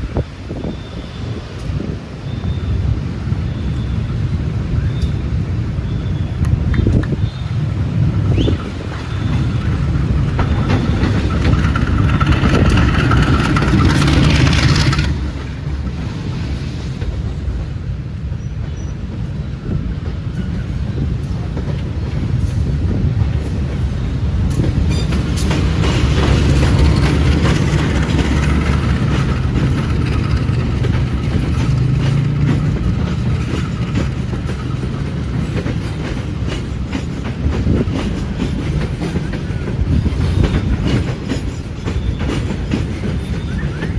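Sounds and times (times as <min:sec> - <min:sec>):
diesel train rumbling: 0:00.0 - 0:43.9
wheels clattering over rail joints: 0:06.7 - 0:17.7, 0:20.0 - 0:43.9.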